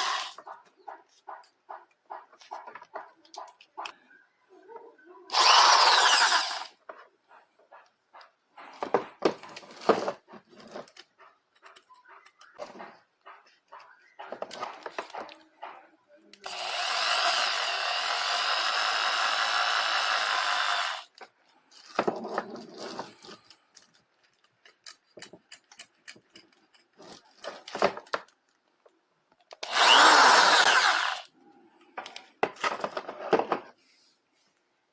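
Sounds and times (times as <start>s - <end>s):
impact drill running in bursts: 5.3s - 6.7s, 29.6s - 31.3s.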